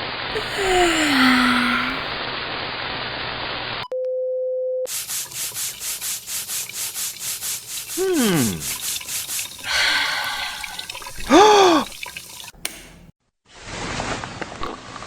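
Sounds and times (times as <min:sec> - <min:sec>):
steady hiss: 0:04.9 - 0:11.9.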